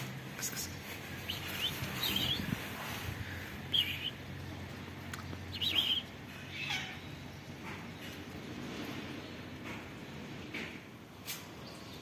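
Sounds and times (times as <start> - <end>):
bird chirping: 1.1 - 2.6, 3.2 - 4.5, 5.1 - 8.2.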